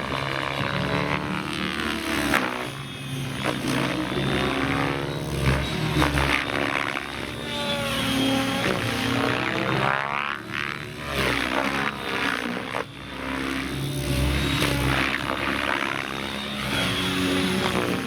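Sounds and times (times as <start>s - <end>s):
model helicopter rotor whining: 0.0s - 18.0s.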